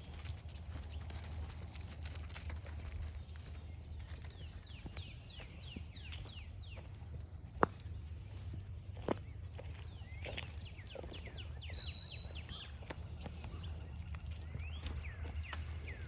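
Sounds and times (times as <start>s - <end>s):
footsteps on forest trail: 0.0s - 16.0s
songbird whistling: 10.1s - 13.7s.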